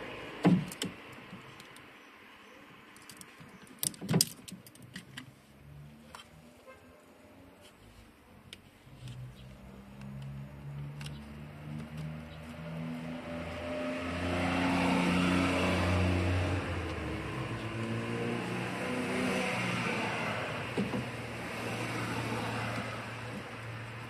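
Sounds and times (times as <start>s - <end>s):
vehicle engine revving: 8.9s - 24.0s.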